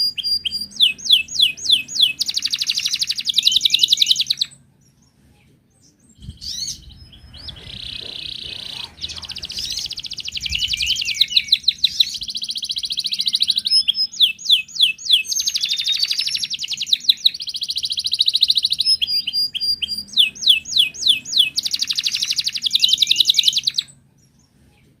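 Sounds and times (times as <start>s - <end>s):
canary singing trills: 0.0s - 24.6s.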